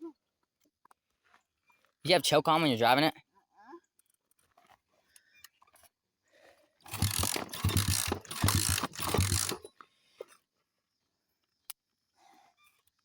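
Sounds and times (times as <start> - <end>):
engine turning over: 6.8 - 9.7
kick-start lever kicked: 6.9 - 9.7.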